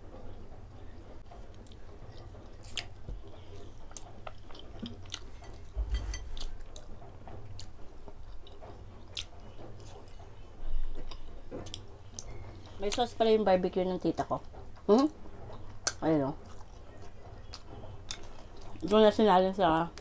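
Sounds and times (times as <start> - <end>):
low hum: 0.0 - 18.9
wet chewing: 1.5 - 10.2, 14.8 - 18.9.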